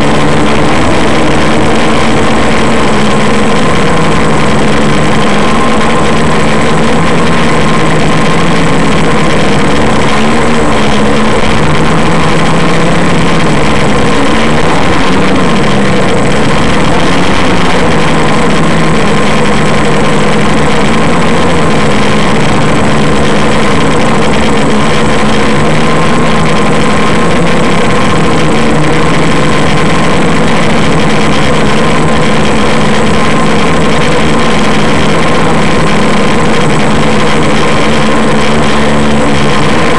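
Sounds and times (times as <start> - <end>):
quadcopter propellers buzzing: 0.0 - 39.9.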